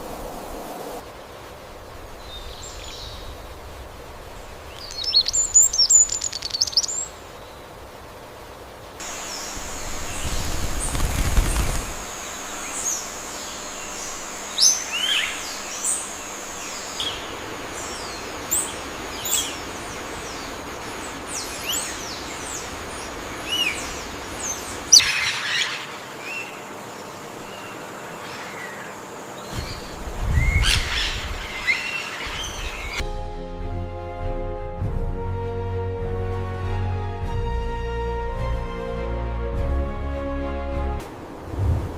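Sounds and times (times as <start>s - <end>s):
birds chirping and whistling: 4.8s - 7.1s, 29.4s - 33.0s.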